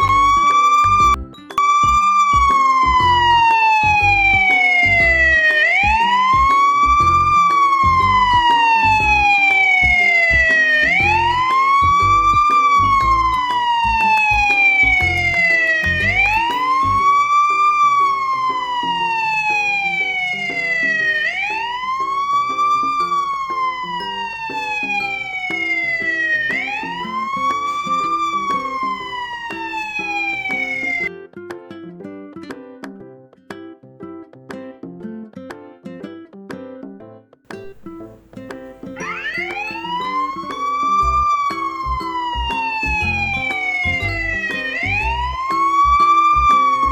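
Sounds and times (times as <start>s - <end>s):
low regular beat: 0.0s - 17.2s
electronic wailing siren: 0.0s - 31.1s, 38.8s - 46.9s.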